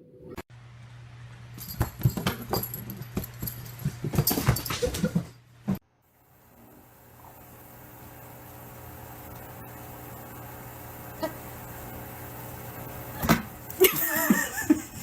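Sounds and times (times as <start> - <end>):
steady low hum: 5.9 - 15.0.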